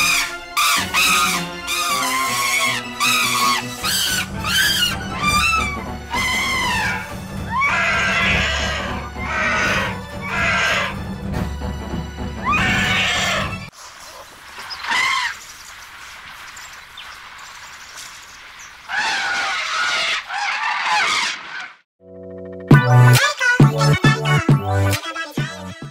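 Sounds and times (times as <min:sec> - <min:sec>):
elephant trumpeting: 0:00.0 - 0:11.1, 0:12.4 - 0:13.7, 0:18.9 - 0:21.8.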